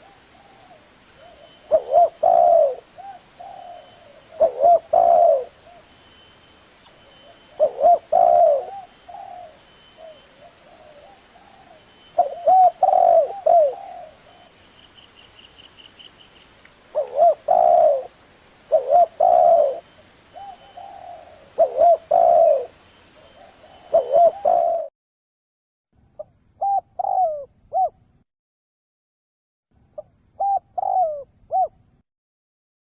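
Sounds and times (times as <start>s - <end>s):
dove cooing: 0.0s - 5.9s, 7.0s - 14.6s, 16.9s - 24.9s, 26.2s - 28.0s, 30.0s - 31.8s.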